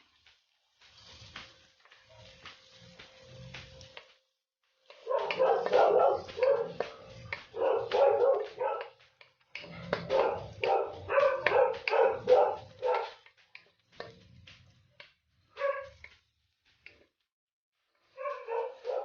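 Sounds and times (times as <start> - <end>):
dog barking and yelping: 5.0 - 9.0, 9.9 - 13.2, 15.5 - 16.0, 18.2 - 19.0.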